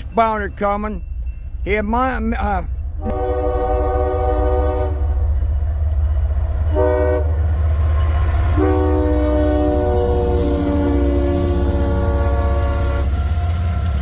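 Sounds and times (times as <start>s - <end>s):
train air horn blasts: 3.0s - 5.2s, 6.7s - 7.5s, 8.4s - 13.3s.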